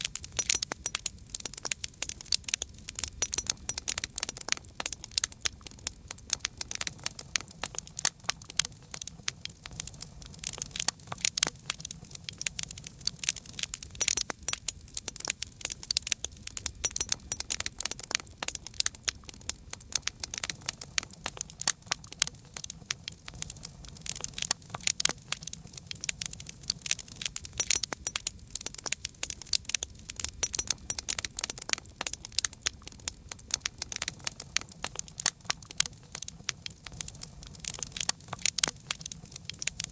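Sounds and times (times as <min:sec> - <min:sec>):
campfire crackling: 0:00.0 - 0:39.9
low rumble of flames: 0:00.0 - 0:39.9.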